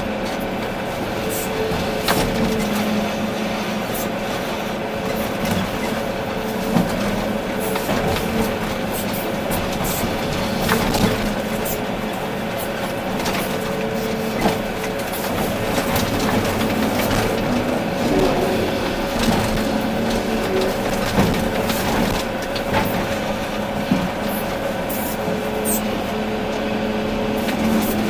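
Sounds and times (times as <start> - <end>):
excavator diesel engine running: 0.0 - 28.0
rock and earth clattering: 12.6 - 24.2.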